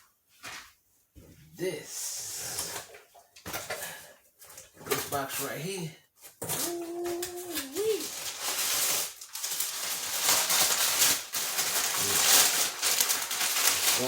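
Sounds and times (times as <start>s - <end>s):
cardboard box rustling and crinkling: 6.4s - 14.0s.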